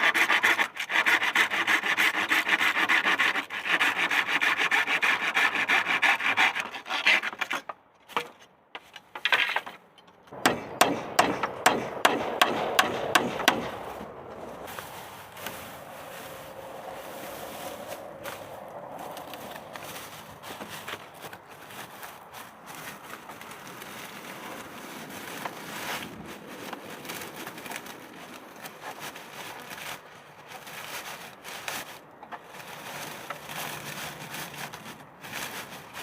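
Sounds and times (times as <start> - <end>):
hand tool scraping wood: 0.0 - 36.0
faint rustling: 13.6 - 36.0.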